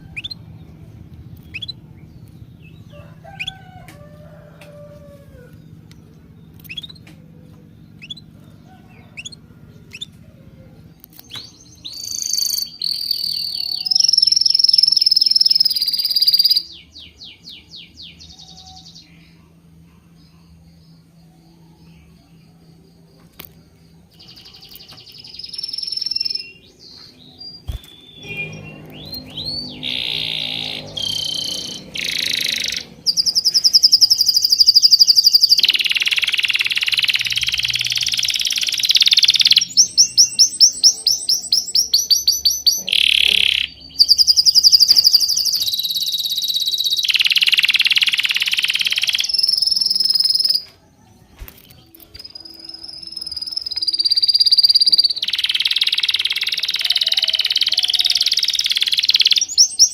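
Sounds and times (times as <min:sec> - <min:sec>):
songbirds chirping and singing: 0:00.0 - 0:59.9.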